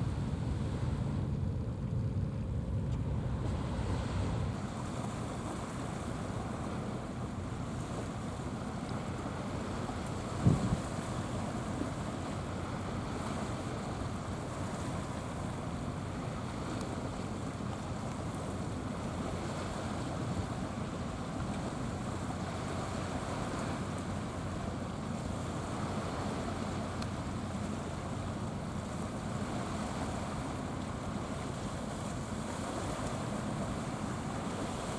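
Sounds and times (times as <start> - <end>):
wind rumble on microphone: 0.0 - 34.9
sea water washing: 3.2 - 34.9.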